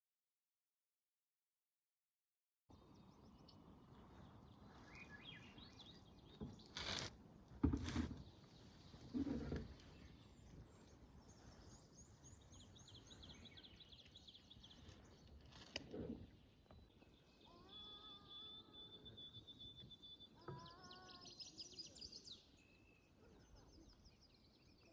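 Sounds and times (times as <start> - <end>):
songbirds chirping: 2.7 - 24.9.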